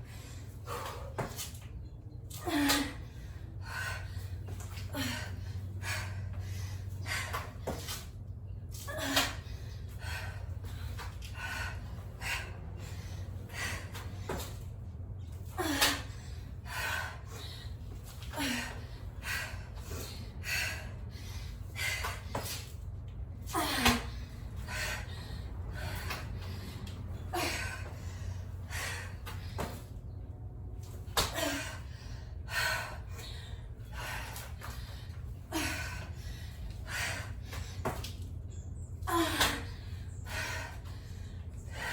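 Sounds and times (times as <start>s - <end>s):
woman breathing hard: 0.0s - 1.5s, 2.3s - 41.9s
person breathing hard: 3.0s - 7.6s, 15.6s - 22.6s, 31.4s - 37.8s.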